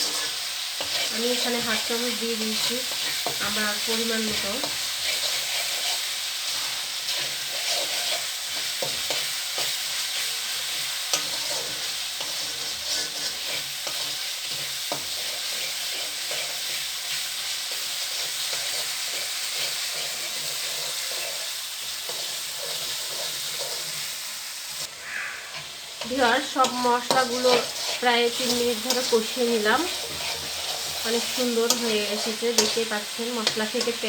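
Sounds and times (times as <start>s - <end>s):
spice paste sizzling in oil: 0.0s - 34.0s.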